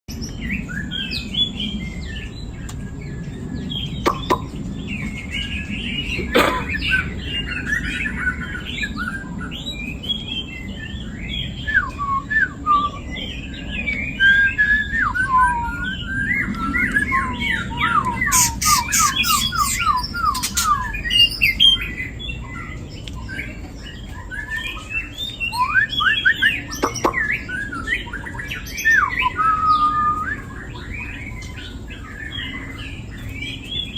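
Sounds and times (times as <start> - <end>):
young birds chirping: 0.1 - 33.9.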